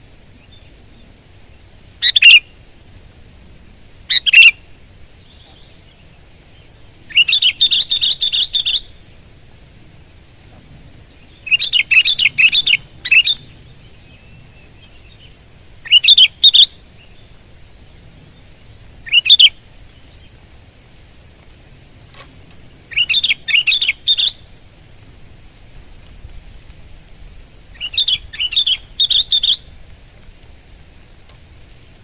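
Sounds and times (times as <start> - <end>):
bird chattering whistled song: 2.0 - 2.6, 4.1 - 6.0, 6.6 - 9.0, 11.2 - 17.3, 17.9 - 20.3, 22.9 - 24.5, 27.7 - 29.7.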